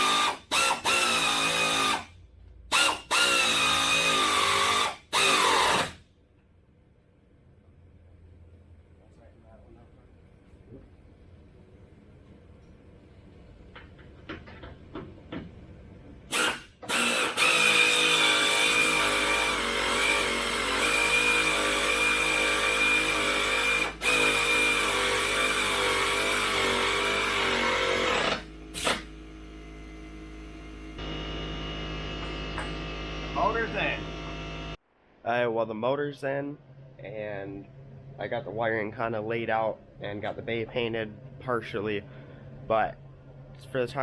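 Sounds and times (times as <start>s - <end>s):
power tool whining: 0.0s - 2.1s, 2.7s - 6.0s, 16.3s - 34.8s.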